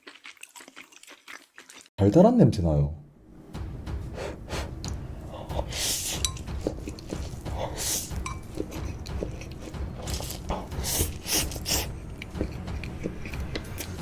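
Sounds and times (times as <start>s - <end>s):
person sniffing and breathing: 4.1s - 12.1s
utensil clinking against dish: 8.1s - 9.5s.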